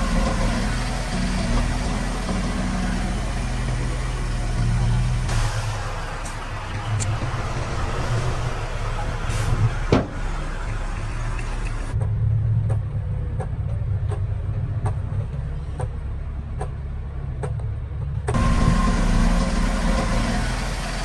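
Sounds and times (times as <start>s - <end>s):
regular ticking: 0.0s - 12.0s
diesel engine running: 0.0s - 21.0s.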